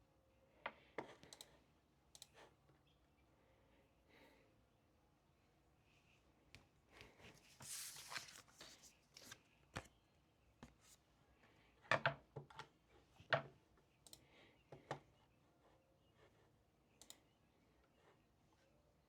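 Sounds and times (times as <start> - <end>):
paper rustling: 7.0 - 9.9.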